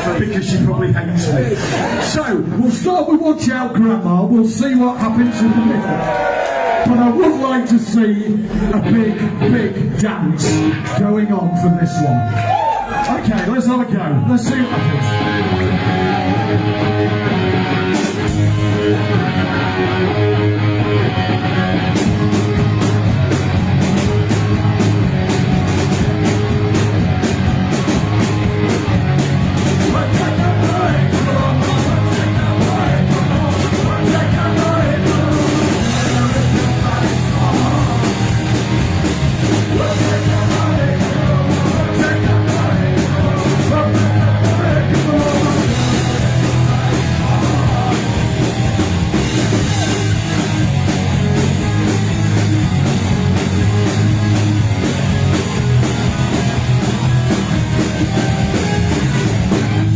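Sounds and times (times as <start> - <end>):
bass guitar: 0.0 - 59.9
distorted guitars: 0.0 - 59.9
fast drumming: 14.6 - 59.9
person singing: 29.8 - 38.9, 39.5 - 48.9.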